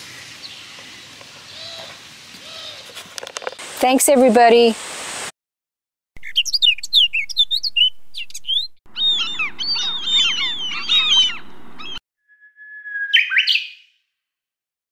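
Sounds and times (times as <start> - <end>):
birds chirping and twittering: 0.0 - 3.0, 6.2 - 12.0
whistle-like tone sweeping up: 12.2 - 13.8.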